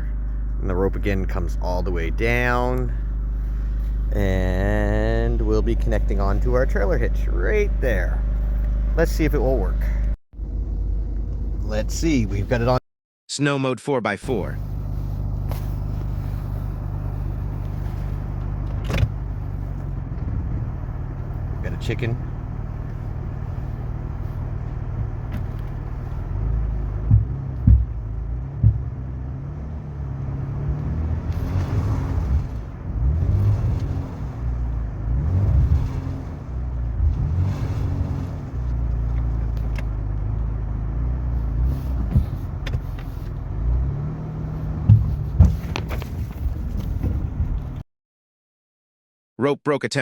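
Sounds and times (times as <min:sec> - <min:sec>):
engine revving under strain: 0:14.3 - 0:47.8
sharp knocks: 0:27.0 - 0:28.0, 0:28.6 - 0:28.9.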